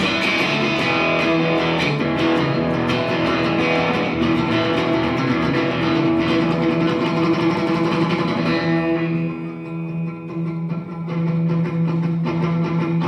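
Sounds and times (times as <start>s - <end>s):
electric guitar: 0.0s - 13.0s
live rock band playing: 0.0s - 13.0s.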